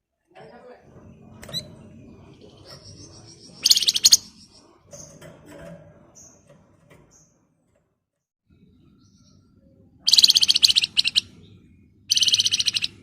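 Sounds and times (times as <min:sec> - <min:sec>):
bird shrill rattling trill: 0:02.8 - 0:04.5, 0:10.1 - 0:11.3, 0:12.1 - 0:13.0.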